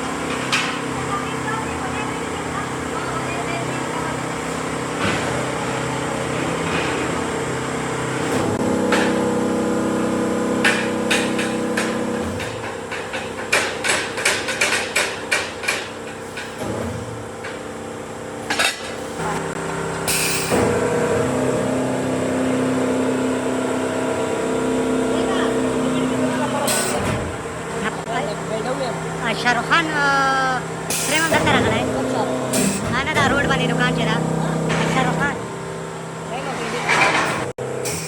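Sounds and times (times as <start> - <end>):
workshop hum: 0.0 - 38.0.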